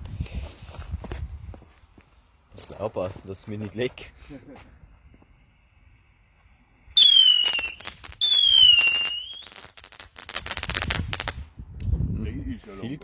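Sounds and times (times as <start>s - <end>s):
rapid firework crackling: 4.9s - 11.4s
rocket whistles falling in pitch: 7.0s - 9.6s.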